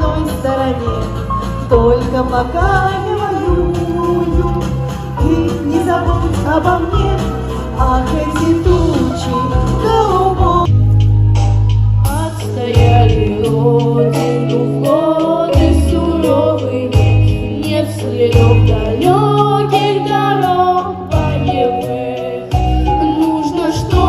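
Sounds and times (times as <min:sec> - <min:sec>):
held bass line: 0:00.0 - 0:24.0
instrumental accompaniment: 0:00.0 - 0:24.0
person singing: 0:12.1 - 0:24.0.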